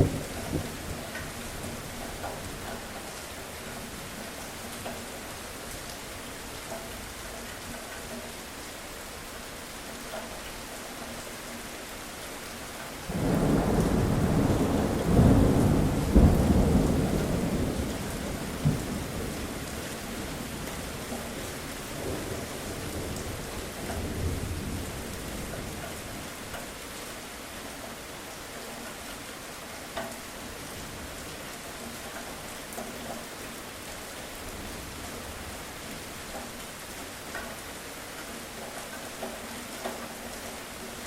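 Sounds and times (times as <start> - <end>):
low rumble of thunder: 0.0 - 3.2, 13.1 - 26.3
steady rain falling: 0.0 - 41.0.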